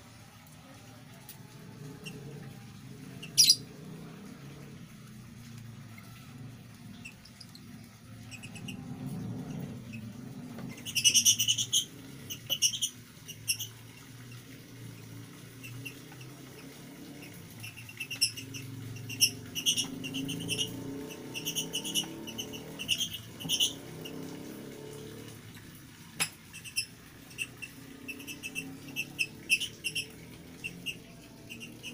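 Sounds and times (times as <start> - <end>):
lovebirds chirping: 3.2 - 3.7.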